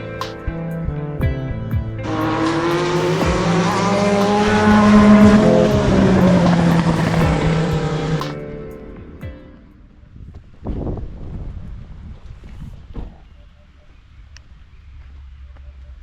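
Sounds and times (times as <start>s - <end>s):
soft background music: 0.0s - 10.3s
race car passing at speed: 2.0s - 8.2s.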